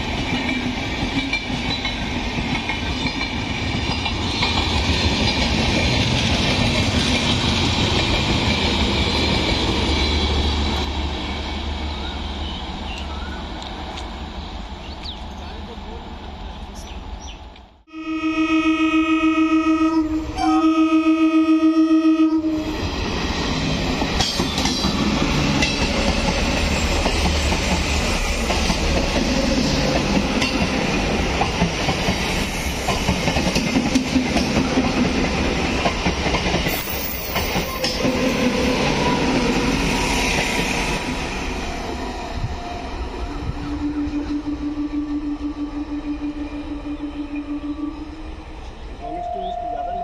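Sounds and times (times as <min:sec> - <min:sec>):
train rumble: 0:00.0 - 0:17.9, 0:22.2 - 0:50.0
train horn blasts: 0:17.9 - 0:22.7, 0:42.4 - 0:50.0.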